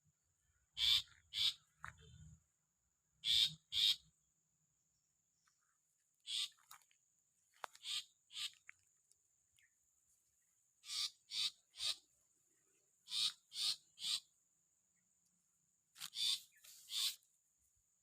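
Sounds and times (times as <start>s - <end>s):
bird harsh rasping calls: 0.7s - 1.8s, 3.2s - 4.1s, 6.2s - 6.6s, 7.8s - 8.6s, 10.8s - 12.1s, 13.0s - 14.3s, 16.0s - 17.2s.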